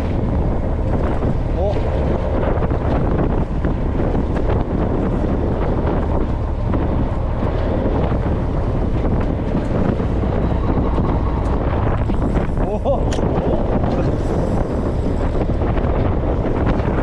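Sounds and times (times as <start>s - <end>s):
low engine rumble: 0.0s - 17.0s
water washing: 0.0s - 17.0s
wind buffeting microphone: 0.0s - 17.0s.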